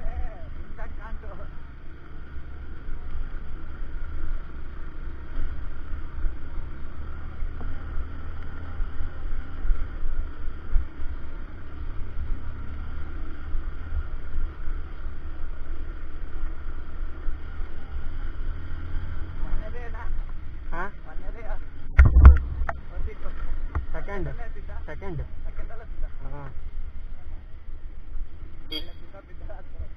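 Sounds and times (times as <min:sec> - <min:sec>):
motorcycle running: 0:00.0 - 0:29.9.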